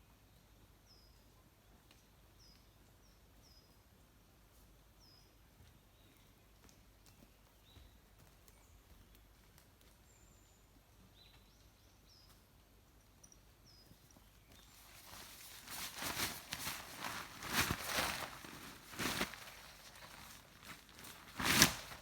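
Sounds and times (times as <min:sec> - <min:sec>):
footsteps rustling through leaves: 0:14.7 - 0:22.0.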